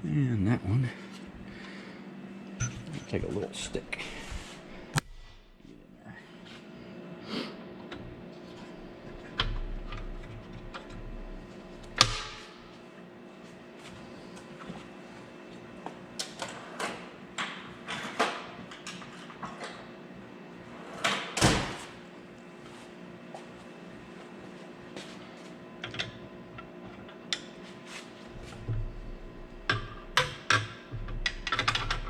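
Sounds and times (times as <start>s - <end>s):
metal hardware clicks and knocks: 29.7s - 32.0s.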